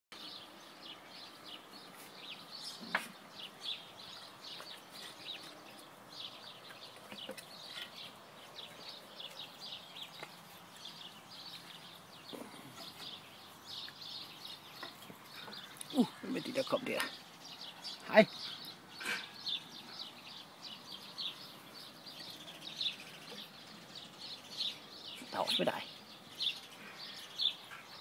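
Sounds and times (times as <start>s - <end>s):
small birds chirping: 0.1s - 28.0s.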